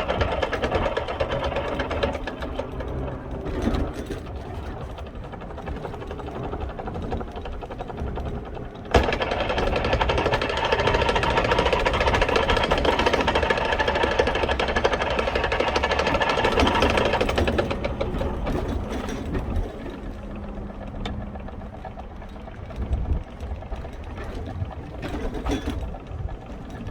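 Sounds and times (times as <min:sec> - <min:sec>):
rapid clicking of damaged gear: 0:00.0 - 0:26.9
scooter engine running: 0:00.0 - 0:26.9.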